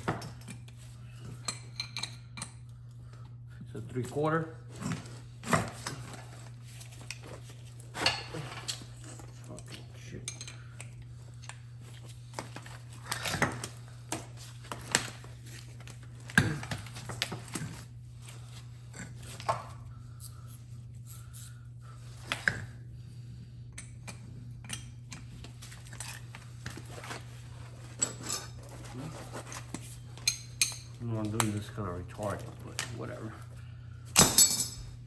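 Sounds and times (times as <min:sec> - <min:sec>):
steady low hum: 0:00.0 - 0:35.0
metal tools clinking: 0:27.8 - 0:31.7, 0:34.2 - 0:35.0.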